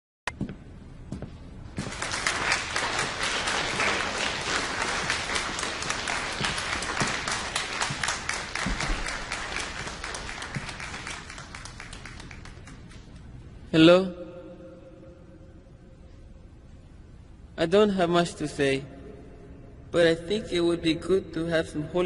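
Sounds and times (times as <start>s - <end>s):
audience applauding: 1.8s - 13.2s.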